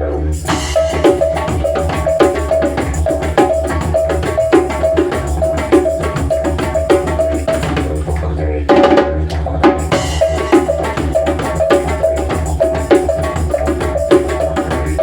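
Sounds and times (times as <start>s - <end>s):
didgeridoo drone: 0.0s - 15.0s
drums and percussion: 0.3s - 15.0s.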